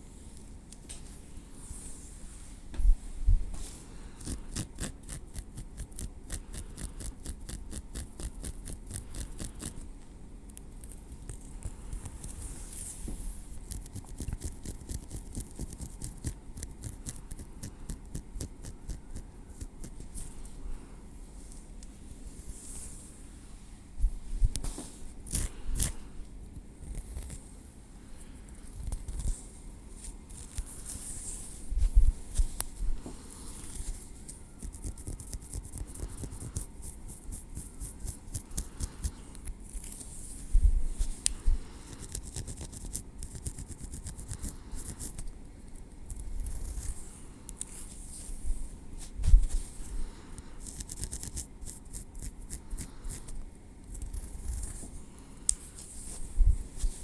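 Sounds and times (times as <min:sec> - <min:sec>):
soft low thumps: 0:02.7 - 0:03.6, 0:24.0 - 0:24.6, 0:31.7 - 0:33.1
tweezers clicking and scraping hair: 0:13.6 - 0:19.9, 0:25.3 - 0:26.0, 0:34.3 - 0:40.0, 0:41.2 - 0:47.8, 0:50.6 - 0:53.3.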